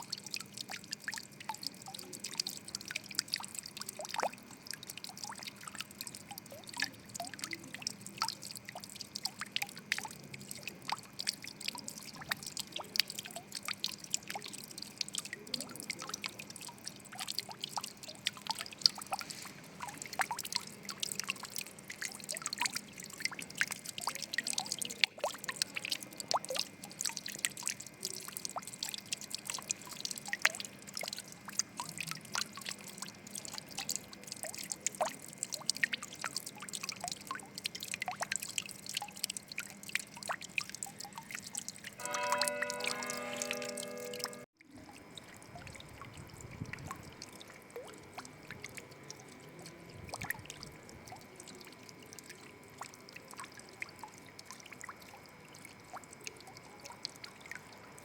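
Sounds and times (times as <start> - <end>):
water trickling and dripping: 0.0 - 58.0.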